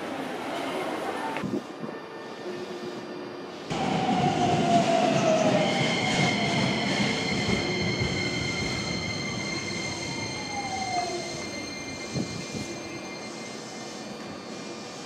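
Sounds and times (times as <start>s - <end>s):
high brake squeal: 6.1s - 15.0s.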